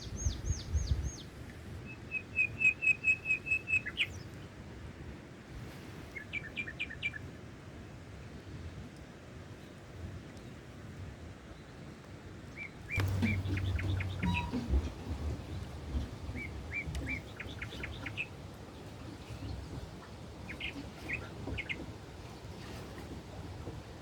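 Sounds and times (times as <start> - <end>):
songbird chirping: 0.0 - 4.4, 12.6 - 22.5
short low rumble: 13.0 - 17.2.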